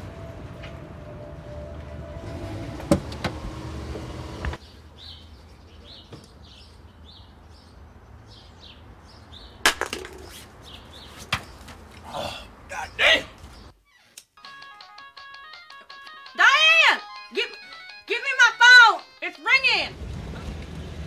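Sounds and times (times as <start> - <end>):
birds chirping: 4.5 - 9.6, 10.2 - 14.1.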